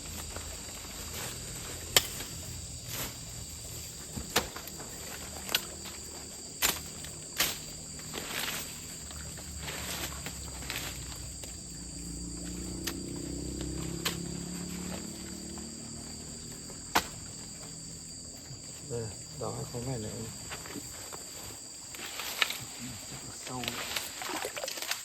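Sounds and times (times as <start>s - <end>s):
insect chorus: 0.0s - 25.0s.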